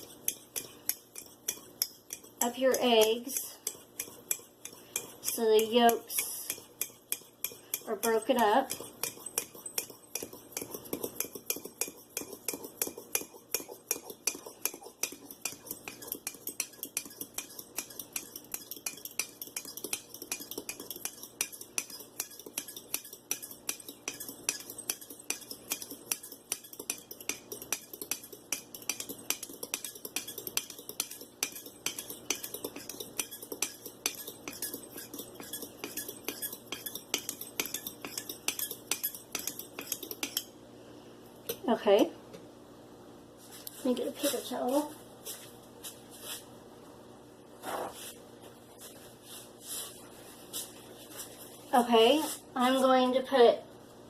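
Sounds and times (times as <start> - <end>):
fork clinking against a mug: 0.0 - 2.4, 3.6 - 40.5.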